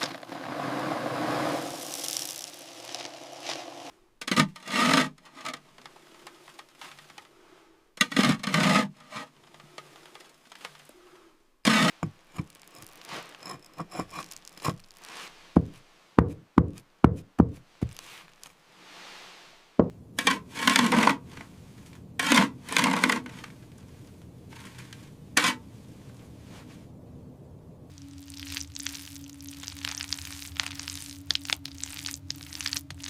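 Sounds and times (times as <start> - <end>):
wood rasping scrapes: 11.6 - 15.2
sharp wooden knocks: 15.6 - 18.0.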